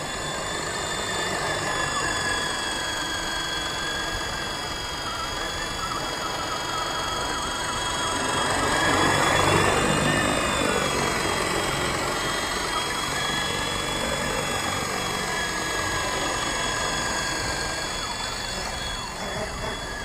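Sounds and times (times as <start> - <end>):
helicopter rotor noise: 0.0 - 20.0
rc helicopter motor whine: 0.0 - 20.0.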